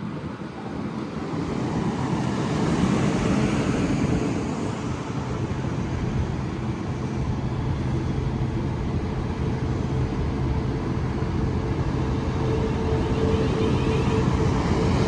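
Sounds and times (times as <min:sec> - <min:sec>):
train rumbling: 0:01.3 - 0:15.0.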